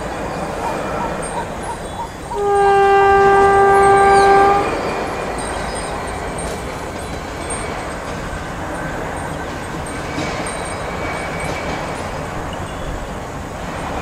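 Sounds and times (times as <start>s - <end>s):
train rumbling: 0.0s - 14.0s
locomotive horn blast: 2.3s - 5.1s.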